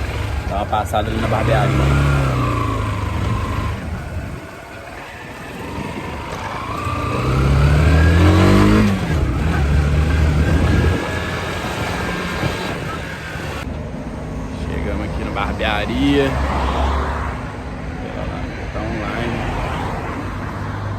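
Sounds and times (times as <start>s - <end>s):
motorcycle engine accelerating: 0.0s - 13.7s.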